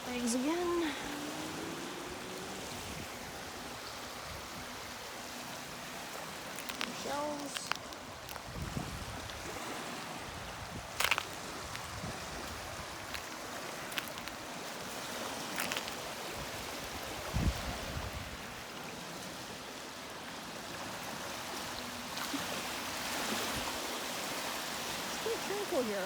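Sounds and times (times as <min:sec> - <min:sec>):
lake waves washing on pebbles: 0:00.0 - 0:26.0
light crunches: 0:06.2 - 0:08.9, 0:10.6 - 0:16.2.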